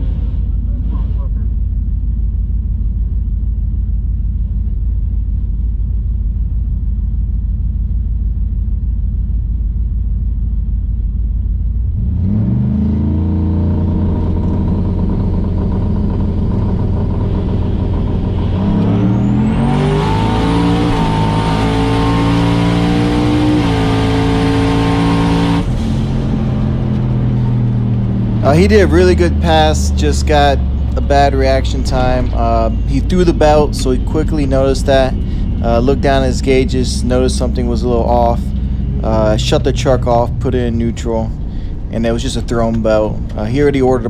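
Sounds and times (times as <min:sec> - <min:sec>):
truck engine revving through gears: 0:00.0 - 0:02.4, 0:11.6 - 0:44.0.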